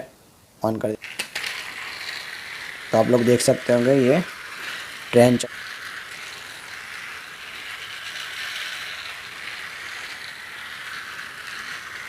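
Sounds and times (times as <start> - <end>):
toy train motor whirring: 1.0 - 12.0.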